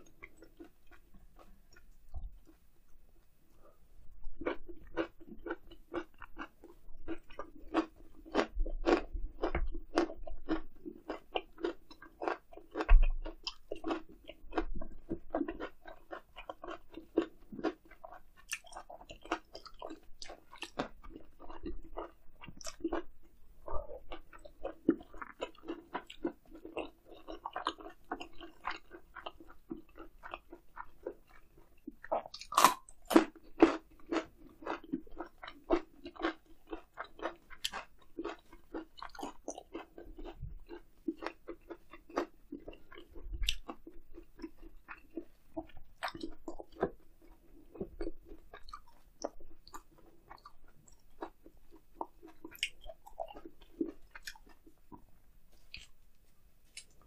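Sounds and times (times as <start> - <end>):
chewing and biting: 0.1 - 2.6, 4.3 - 55.0, 55.6 - 56.0.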